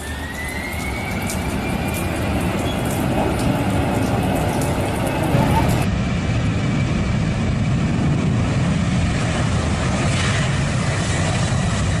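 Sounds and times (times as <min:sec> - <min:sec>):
jet engines spooling up: 0:04.8 - 0:12.0.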